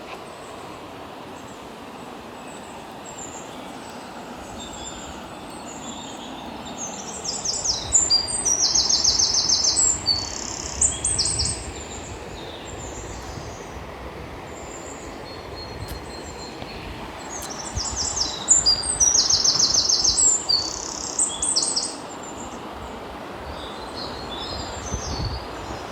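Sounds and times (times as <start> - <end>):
bird trilling: 17.3 - 22.0.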